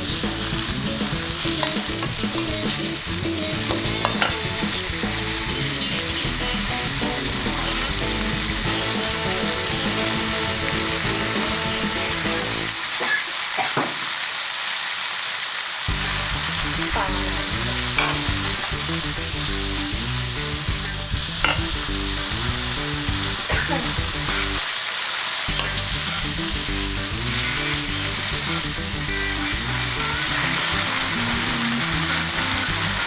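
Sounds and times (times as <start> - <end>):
food sizzling in hot oil: 0.0 - 33.0
spatula scraping pan: 0.4 - 13.2, 27.0 - 33.0.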